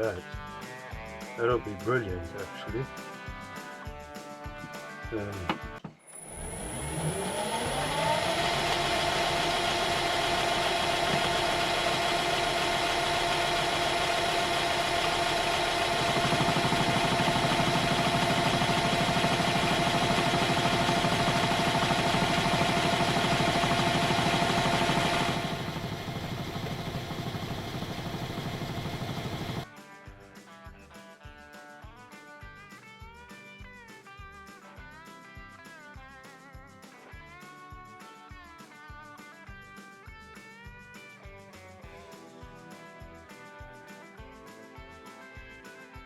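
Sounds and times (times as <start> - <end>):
machine motor whine: 6.1 - 29.6
countersink bit cutting steel: 6.2 - 29.6.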